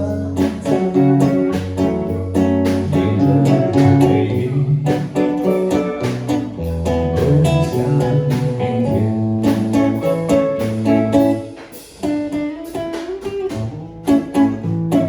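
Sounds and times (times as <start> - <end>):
low bass line: 0.0 - 11.4
bending guitar note: 0.0 - 15.0
guitars strumming: 0.0 - 15.0.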